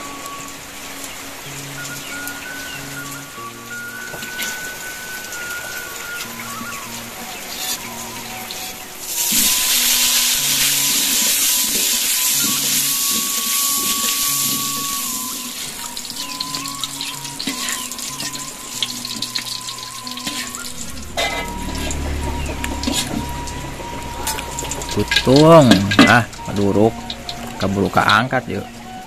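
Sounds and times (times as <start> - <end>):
eggplants frying in hot oil: 0.0 - 29.0.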